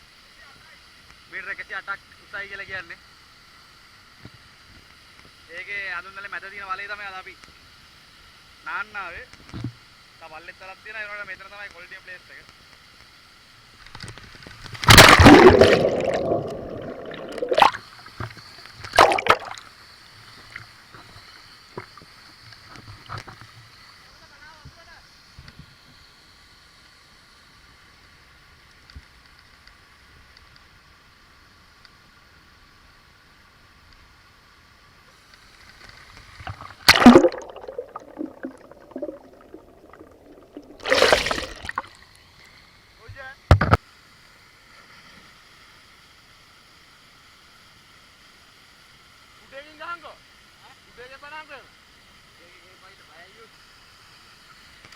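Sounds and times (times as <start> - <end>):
water splashing in pool: 14.8 - 18.1, 18.9 - 19.6, 36.4 - 42.0.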